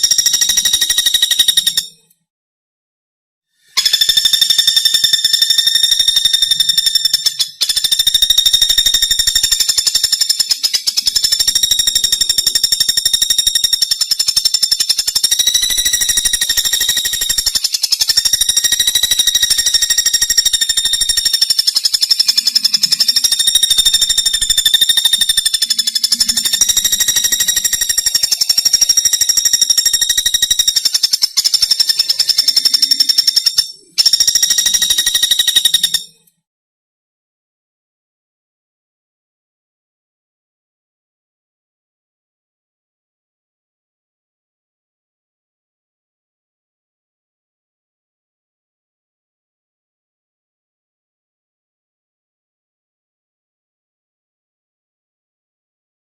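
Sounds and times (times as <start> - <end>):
woodpecker high-pitched trill: 0.0 - 2.1, 3.6 - 36.3.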